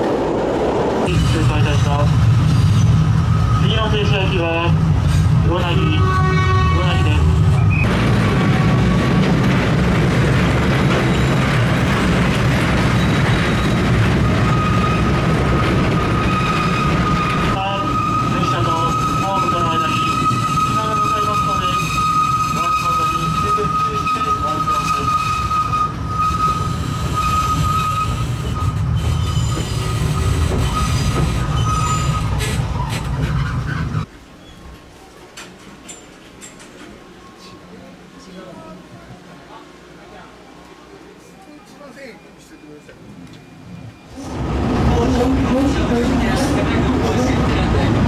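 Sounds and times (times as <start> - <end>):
train wheels rumbling and rattling: 0.0 - 37.2, 43.3 - 48.0
train car low rumble: 42.4 - 48.0.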